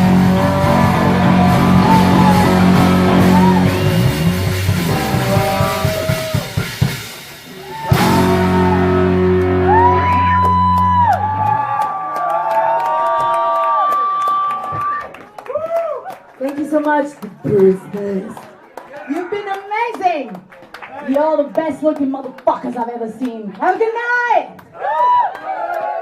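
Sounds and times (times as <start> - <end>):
guitar notes sliding: 0.0 - 6.8, 7.6 - 11.6
live rock band playing: 0.0 - 11.8.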